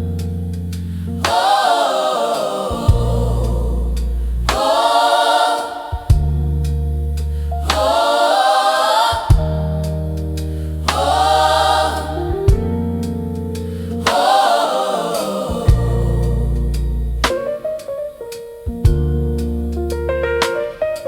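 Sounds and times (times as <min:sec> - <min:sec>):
gospel choir singing: 0:01.0 - 0:18.2
low held chords: 0:02.7 - 0:04.8, 0:05.9 - 0:08.1, 0:09.1 - 0:14.4, 0:15.4 - 0:17.8, 0:18.7 - 0:20.5.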